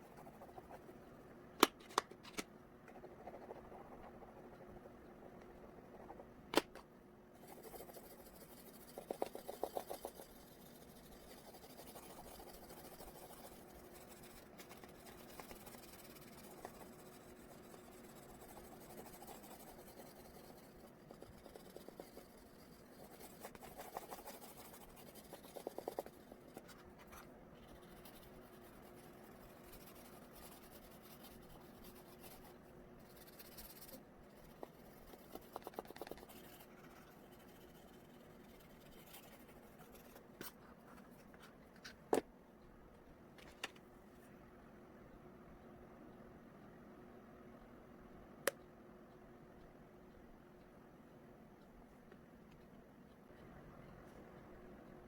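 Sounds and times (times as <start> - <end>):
oil pastel scratching on paper: 0.0 - 1.0, 2.9 - 5.0, 7.4 - 41.5
quick scribbling: 7.4 - 41.3.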